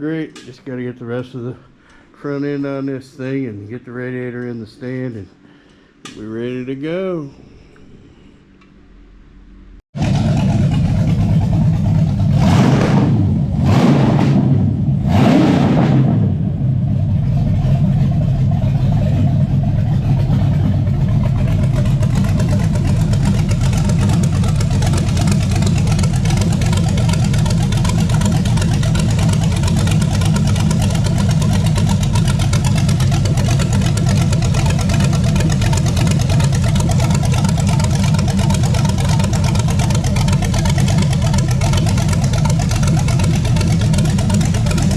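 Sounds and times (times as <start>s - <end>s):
engine throttle blips: 9.4s - 44.9s
engine idling: 10.0s - 44.9s.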